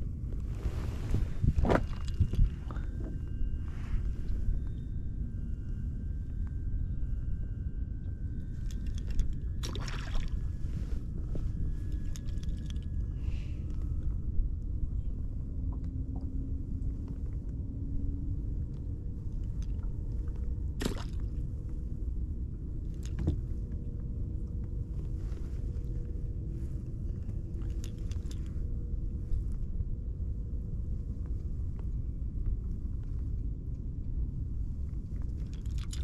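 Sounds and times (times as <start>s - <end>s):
water and wind rumble: 0.0s - 36.0s.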